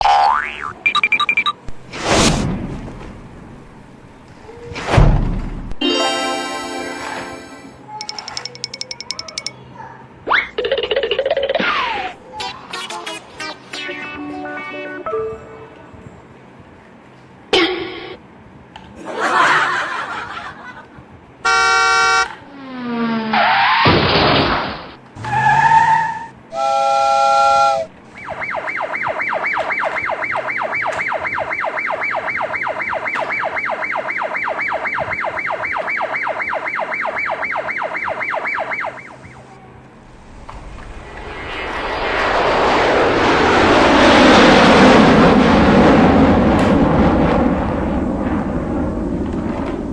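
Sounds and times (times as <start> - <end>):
rapid buzzing rattle: 8.0 - 9.5
cartoon horn toots and beeps: 21.5 - 22.3
falling whistle: 25.5 - 39.4
rushing roar: 39.9 - 49.9.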